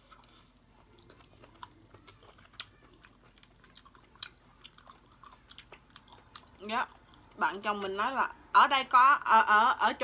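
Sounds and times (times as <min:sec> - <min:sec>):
faint chewing: 0:00.0 - 0:07.4.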